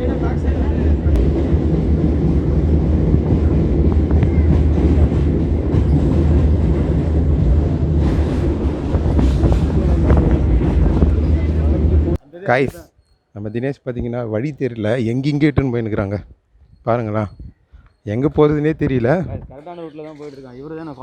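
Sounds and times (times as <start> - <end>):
electric train rumbling: 0.0 - 12.8.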